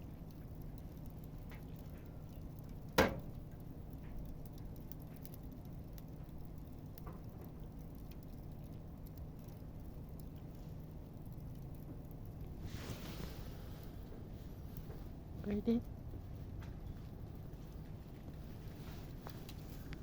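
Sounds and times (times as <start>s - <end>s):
campfire crackling: 0.0s - 20.0s
low steady hum: 0.0s - 20.0s
sharp pop of fire: 3.0s - 3.3s.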